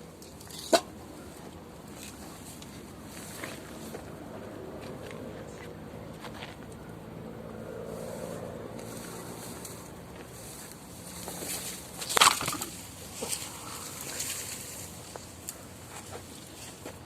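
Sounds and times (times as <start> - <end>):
bamboo canes rustling: 0.0 - 4.1, 8.8 - 17.0.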